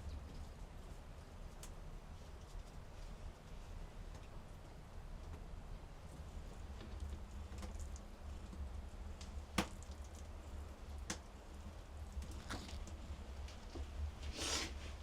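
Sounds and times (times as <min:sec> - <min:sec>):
steady low hum: 0:00.0 - 0:15.0
light clicks and taps: 0:06.7 - 0:10.3, 0:10.9 - 0:11.4.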